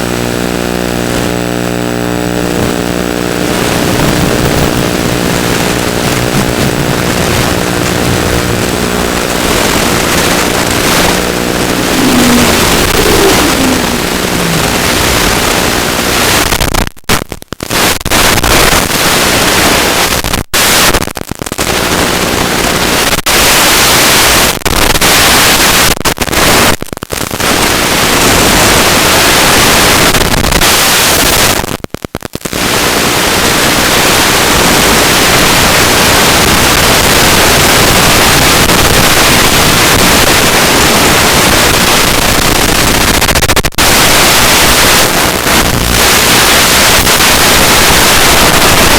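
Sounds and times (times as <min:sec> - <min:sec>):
loud steady hiss: 0:01.0 - 0:16.7, 0:32.5 - 0:48.9.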